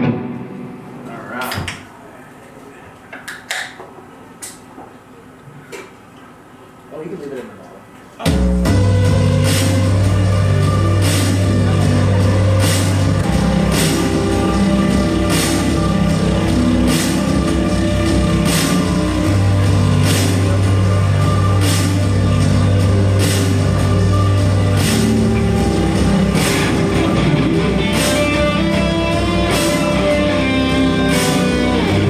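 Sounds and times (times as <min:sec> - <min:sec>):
guitar chords: 0:00.0 - 0:01.3, 0:08.3 - 0:32.0
drum beat with cymbal hits: 0:08.2 - 0:32.0
low bass notes: 0:08.3 - 0:32.0.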